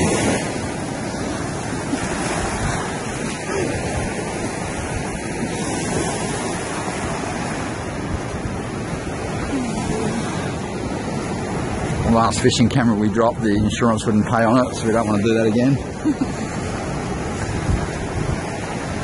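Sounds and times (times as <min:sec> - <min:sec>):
ocean surf washing on beach: 0:00.0 - 0:19.0
wind buffeting microphone: 0:00.0 - 0:19.0.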